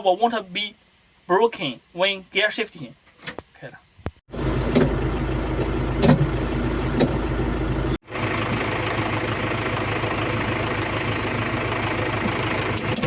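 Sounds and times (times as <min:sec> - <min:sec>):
diesel engine idling: 0:04.3 - 0:13.0
short engine knocks: 0:05.6 - 0:07.3.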